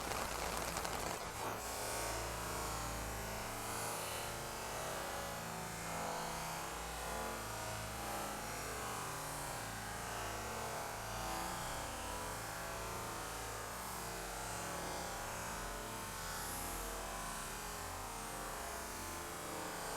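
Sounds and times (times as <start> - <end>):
steady rain falling: 0.0 - 1.4.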